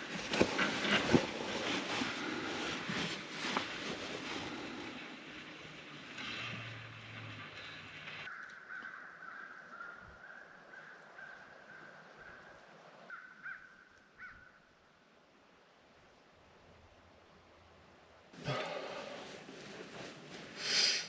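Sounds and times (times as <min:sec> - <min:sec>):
bird calling: 0:07.4 - 0:14.6.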